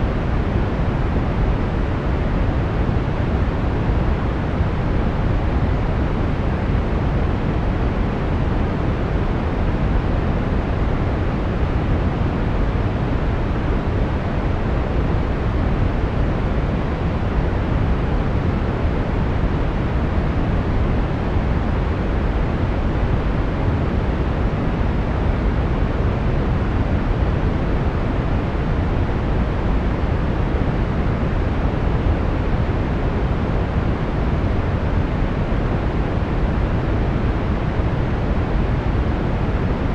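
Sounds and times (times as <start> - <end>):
brown noise: 0.0 - 39.9.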